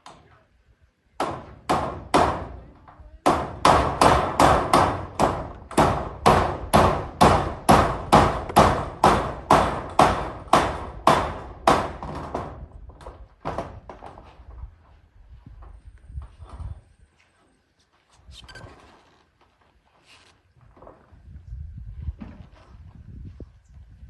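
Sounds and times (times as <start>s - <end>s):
hammer striking metal sheets: 3.3s - 12.6s.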